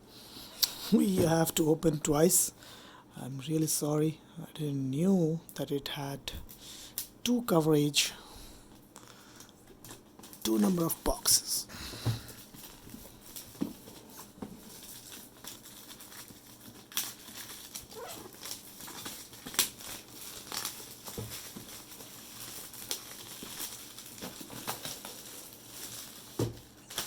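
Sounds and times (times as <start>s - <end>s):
cardboard packaging rustling: 12.2s - 27.0s.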